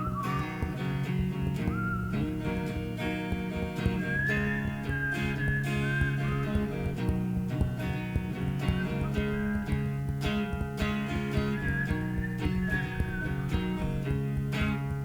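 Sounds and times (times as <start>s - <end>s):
whistled melody: 0.0s - 7.7s, 11.0s - 14.4s
strummed acoustic guitar: 0.0s - 15.0s.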